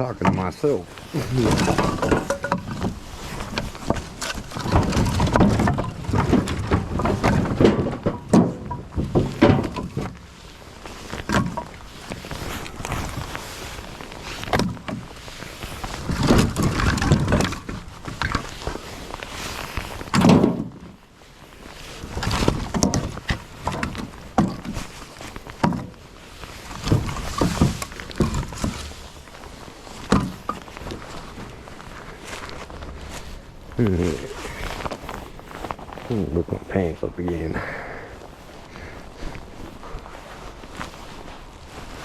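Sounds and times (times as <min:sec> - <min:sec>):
wood scraping and shuffling: 0:00.0 - 0:42.0
firewood pieces knocking together: 0:01.2 - 0:10.3, 0:11.1 - 0:12.2, 0:16.0 - 0:18.5, 0:20.0 - 0:20.8, 0:26.7 - 0:29.0, 0:30.0 - 0:30.8.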